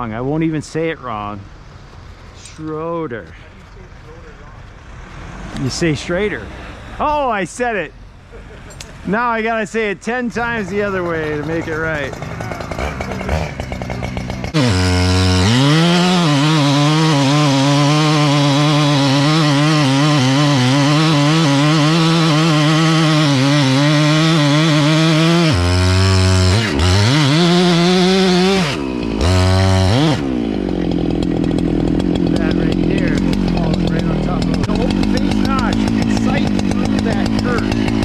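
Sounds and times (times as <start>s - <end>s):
chainsaw cutting into wood: 10.4s - 38.0s.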